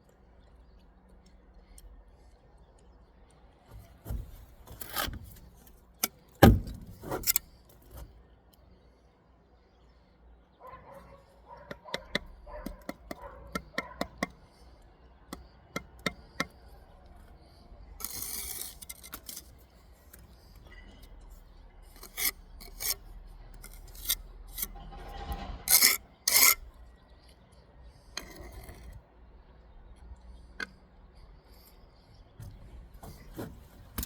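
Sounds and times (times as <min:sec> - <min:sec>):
trowel scraping mortar: 0:18.0 - 0:21.2, 0:21.8 - 0:26.7, 0:28.1 - 0:29.0.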